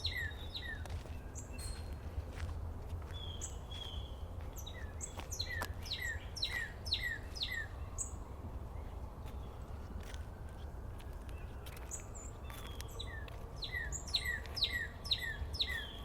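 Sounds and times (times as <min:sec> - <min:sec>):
small birds chirping: 0:00.0 - 0:02.1, 0:03.0 - 0:09.8, 0:11.3 - 0:16.0.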